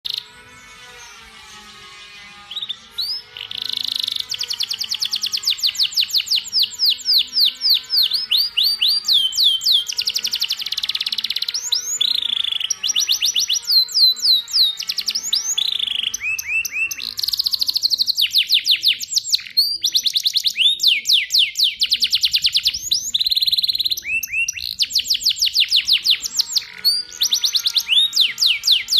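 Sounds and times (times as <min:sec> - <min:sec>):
canary singing trills: 0:00.1 - 0:28.9.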